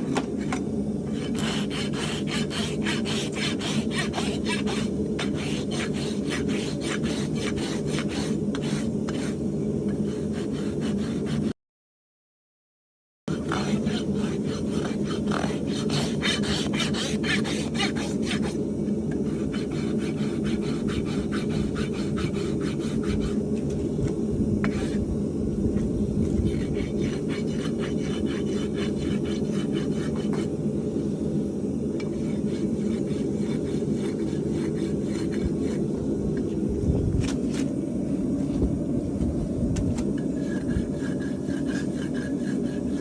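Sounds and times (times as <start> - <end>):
steady low rumble: 0.0 - 11.4, 13.3 - 43.0
rasp filing a hoof: 1.1 - 11.5, 13.3 - 18.6, 19.2 - 23.4, 24.6 - 25.0, 26.3 - 30.5, 32.1 - 35.9, 40.2 - 43.0.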